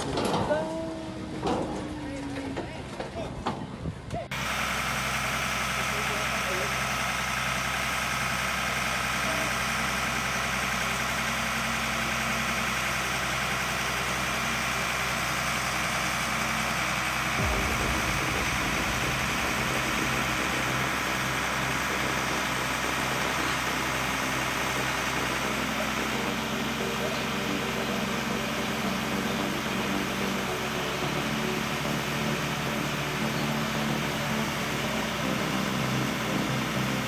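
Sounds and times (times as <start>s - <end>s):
heavy vehicle engine idling: 4.3s - 37.0s
deep low rumble: 17.2s - 25.8s.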